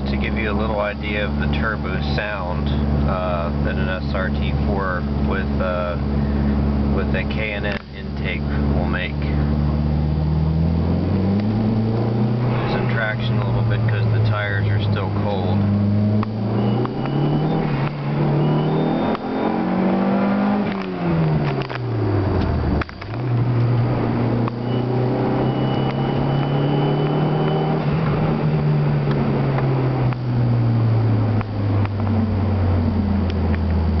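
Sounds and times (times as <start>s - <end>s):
car engine accelerating: 0.0s - 34.0s
faint high turbo whistle: 16.4s - 19.7s, 24.6s - 27.7s.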